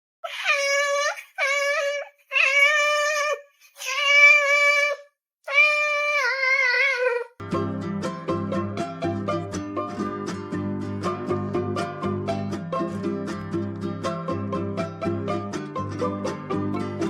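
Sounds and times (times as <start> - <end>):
cat meowing loudly: 4.0 - 7.3
plucked-string music: 7.4 - 17.0.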